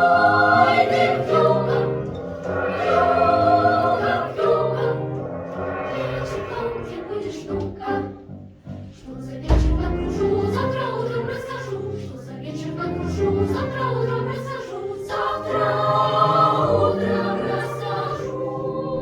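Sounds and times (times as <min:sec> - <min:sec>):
children's choir singing: 0:00.0 - 0:19.0
piano: 0:00.0 - 0:19.0.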